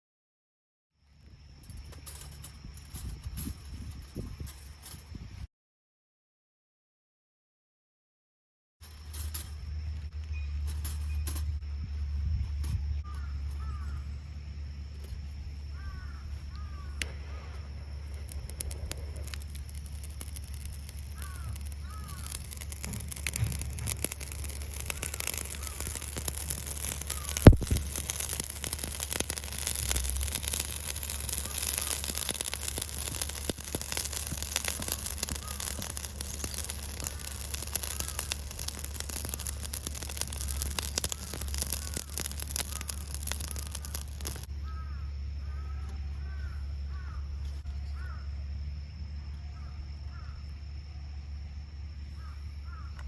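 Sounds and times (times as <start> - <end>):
fire crackling and popping in stove: 1.6 - 5.2, 8.8 - 11.7, 12.4 - 44.5
crows cawing: 13.1 - 14.1, 15.7 - 17.4, 20.6 - 23.4, 24.4 - 27.4, 30.8 - 48.3, 49.6 - 50.4, 52.2 - 53.0.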